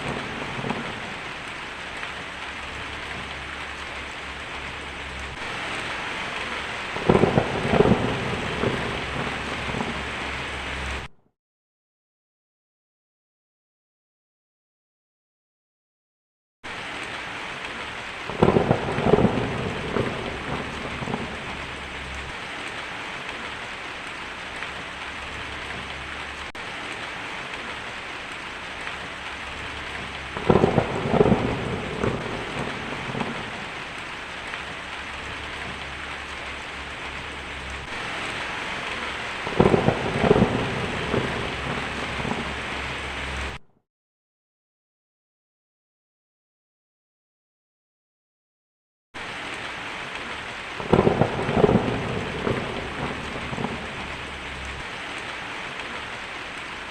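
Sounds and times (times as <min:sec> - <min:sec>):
heavy rain: 0:00.0 - 0:11.1, 0:16.7 - 0:43.6, 0:49.2 - 0:56.9
thunder rolling: 0:00.0 - 0:11.1, 0:18.3 - 0:22.4, 0:29.0 - 0:43.6, 0:50.8 - 0:54.8.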